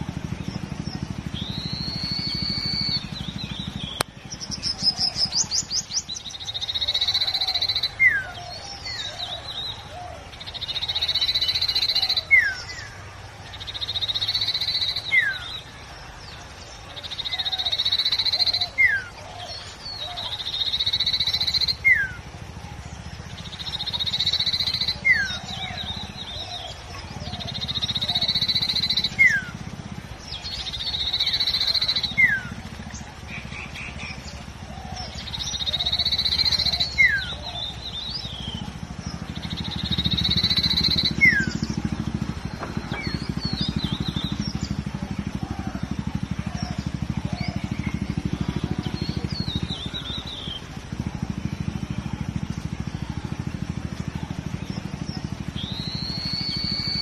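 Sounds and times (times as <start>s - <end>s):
low rumble: 0.0s - 6.7s
bird whistling song: 0.0s - 57.0s.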